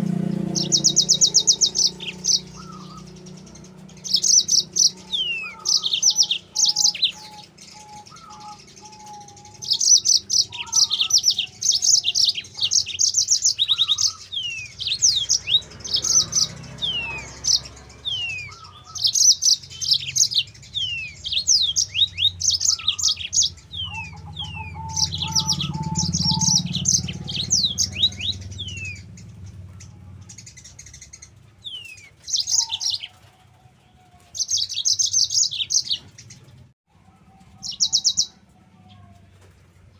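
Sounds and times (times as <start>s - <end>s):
canary singing trills and whistles: 0.0s - 33.4s, 34.0s - 36.7s, 37.6s - 39.0s.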